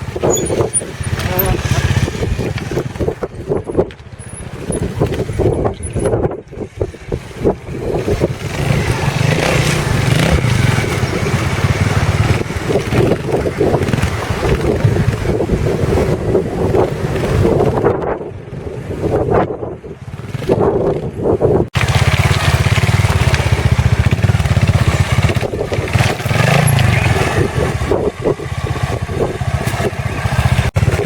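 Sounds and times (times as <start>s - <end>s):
motorcycle engine revving: 0.0s - 3.6s, 7.1s - 18.0s, 21.7s - 31.0s.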